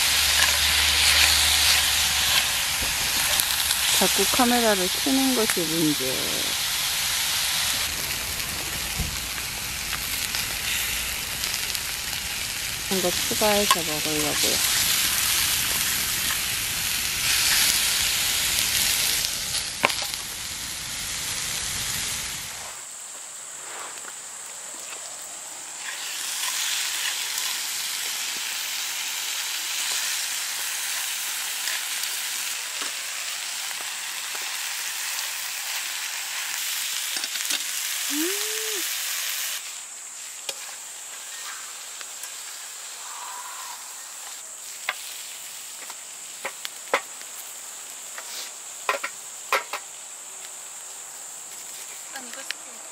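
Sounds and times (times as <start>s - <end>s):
meat sizzling in a frying pan: 0.0s - 22.6s, 25.1s - 52.5s.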